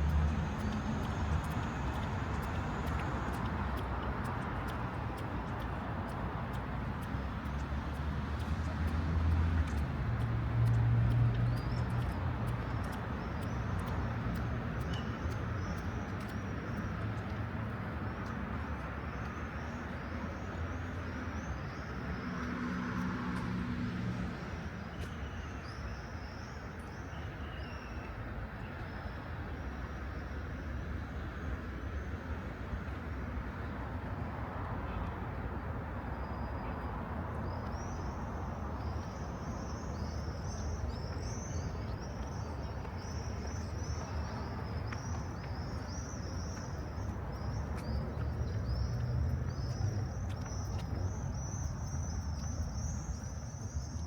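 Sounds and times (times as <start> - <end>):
passing vehicles engine hum: 0.0 - 25.6, 28.2 - 54.0
birds chirping: 39.7 - 54.0.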